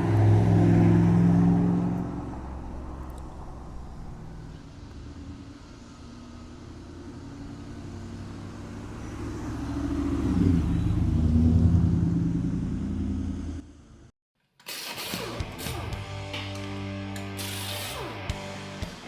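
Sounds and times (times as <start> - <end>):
truck exhaust rumbling: 0.0 - 14.1.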